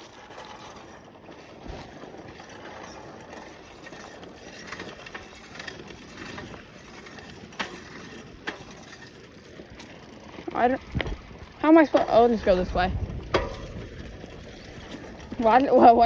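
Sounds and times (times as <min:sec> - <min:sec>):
bicycle tyres rumbling on dirt: 0:00.0 - 0:16.0
bike clicks and rattles: 0:00.0 - 0:16.0.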